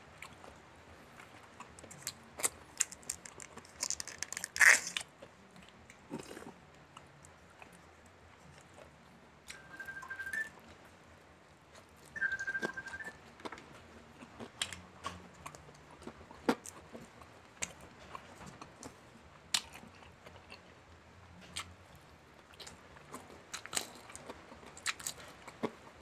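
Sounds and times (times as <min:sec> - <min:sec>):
wet chewing and smacking: 0:00.2 - 0:08.9, 0:11.7 - 0:25.8
sharp crunches of breading: 0:01.6 - 0:06.6
high-pitched steady tone: 0:09.5 - 0:10.6, 0:12.2 - 0:13.2.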